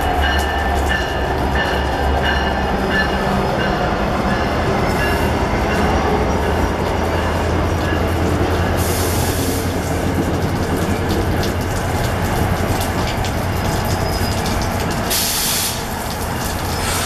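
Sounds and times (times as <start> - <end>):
train coaches rumbling past: 0.0 - 17.0
brief hisses: 16.8 - 17.0.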